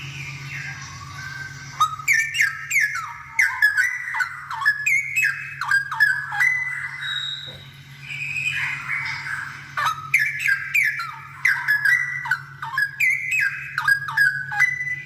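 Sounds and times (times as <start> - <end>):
bird singing whistled notes: 0.0 - 15.0
faint low hum: 0.0 - 15.0.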